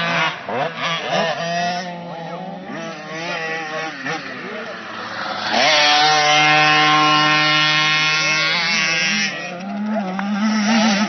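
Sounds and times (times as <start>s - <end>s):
motocross bike engine revving: 0.0s - 11.0s.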